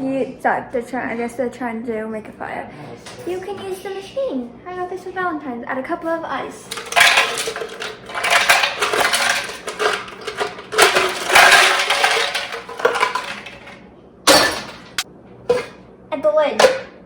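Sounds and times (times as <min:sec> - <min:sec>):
ice cubes clattering into plastic: 0:06.7 - 0:15.6.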